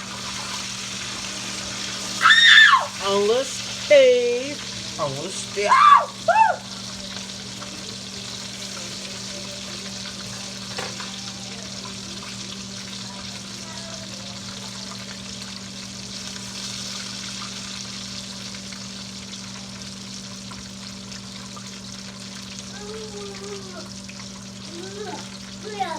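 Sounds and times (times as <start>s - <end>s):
chicken sizzling in hot oil: 0.0s - 25.9s.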